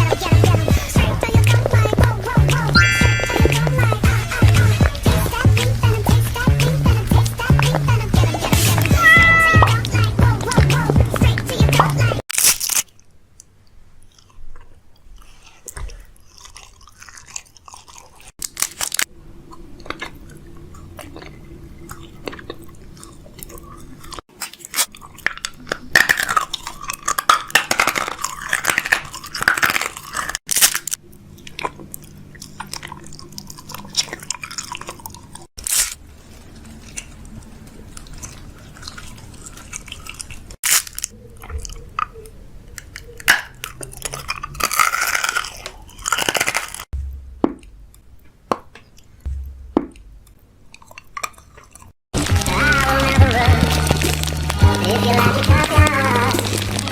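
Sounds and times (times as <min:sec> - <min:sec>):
chewing and crunching food: 0:00.0 - 0:56.9.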